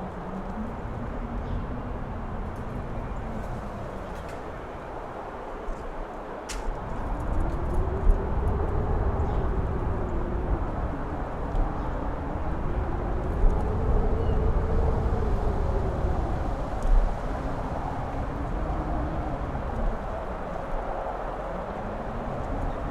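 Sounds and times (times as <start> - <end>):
strong wind rumbling: 0.0 - 22.9
faint howling whistle: 7.5 - 16.2.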